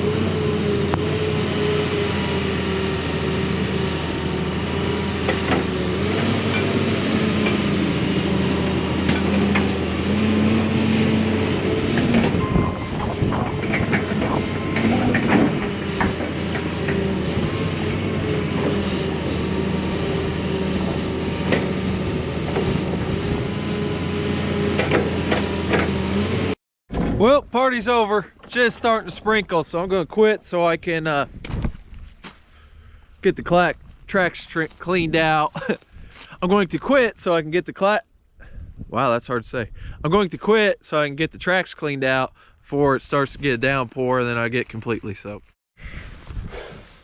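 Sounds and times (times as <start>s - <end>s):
excavator diesel engine running: 0.0s - 26.6s
metal clanks and knocks: 11.9s - 17.2s.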